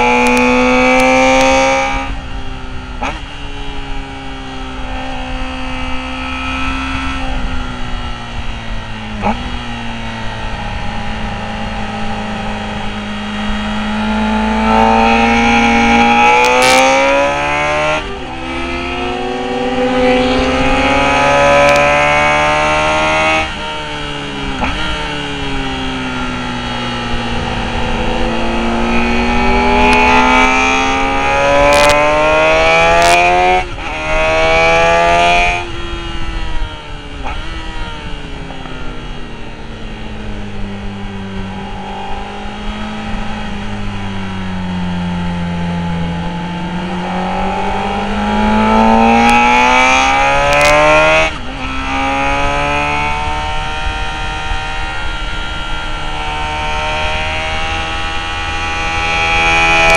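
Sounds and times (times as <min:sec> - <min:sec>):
motorcycle engine at full throttle: 0:00.0 - 0:59.9
wind rush: 0:14.8 - 0:45.0.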